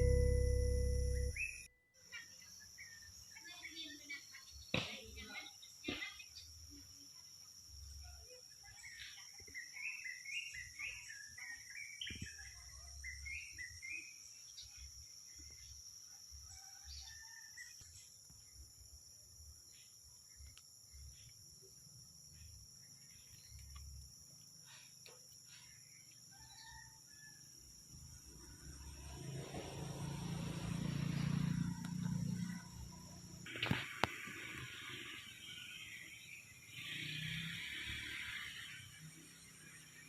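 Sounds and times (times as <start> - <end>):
small bird chirps: 0.0 - 15.8, 19.6 - 27.3.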